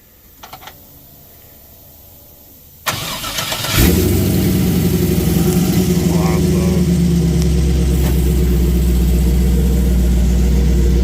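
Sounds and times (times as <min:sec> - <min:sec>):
starter cranking engine: 0:02.9 - 0:11.0
vehicle engine running: 0:02.9 - 0:11.0.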